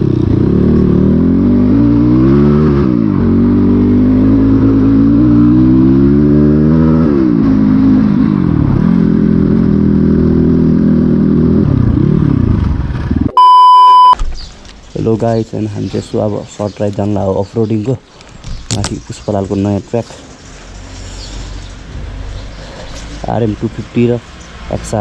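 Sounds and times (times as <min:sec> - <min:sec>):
dirt bike engine revving: 0:00.0 - 0:13.2.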